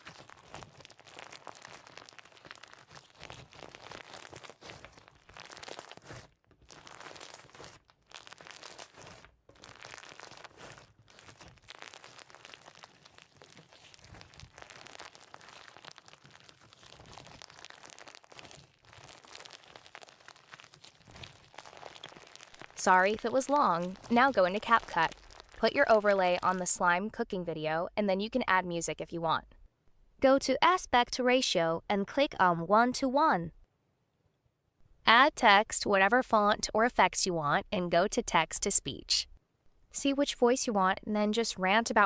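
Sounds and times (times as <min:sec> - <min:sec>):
slime squeezed by hand crackling: 0:00.0 - 0:26.8.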